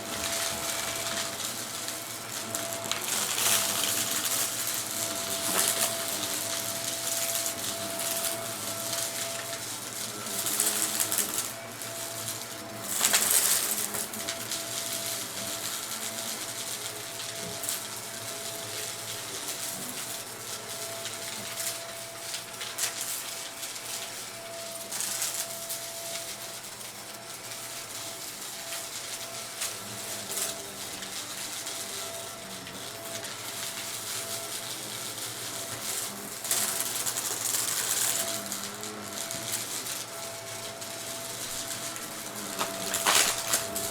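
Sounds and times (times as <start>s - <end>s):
debris rattling through vacuum: 0.0s - 43.9s
vacuum cleaner motor whine: 0.0s - 43.9s.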